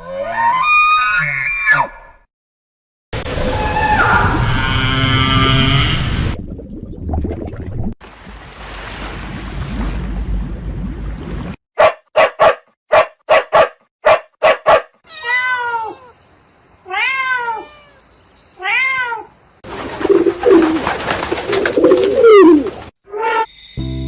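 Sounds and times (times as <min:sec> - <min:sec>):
cat meowing: 0:15.1 - 0:16.2, 0:16.9 - 0:19.3.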